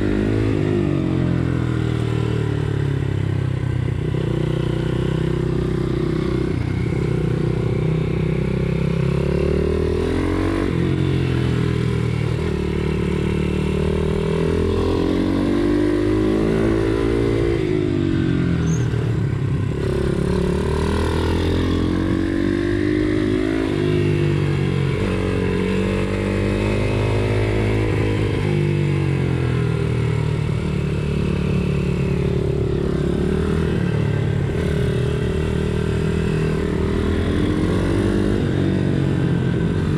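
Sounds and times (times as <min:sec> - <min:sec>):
motorbike engine revving: 0:19.6 - 0:39.9.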